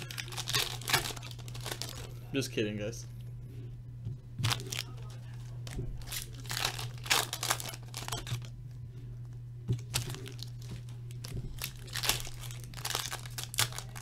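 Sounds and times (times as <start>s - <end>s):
foil wrappers tearing and crinkling: 0.0s - 2.2s, 4.4s - 8.5s, 9.8s - 14.0s
low electrical hum: 0.0s - 14.0s.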